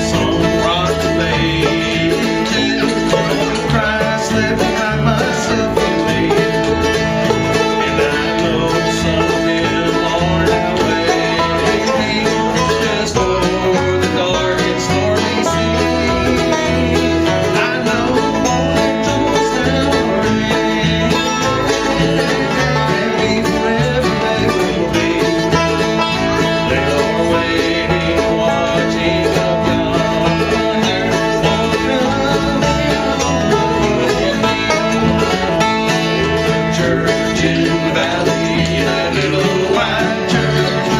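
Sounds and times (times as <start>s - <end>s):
banjo picking: 0.0s - 40.9s
guitar picking: 0.0s - 40.9s
upright bass line: 0.0s - 40.9s.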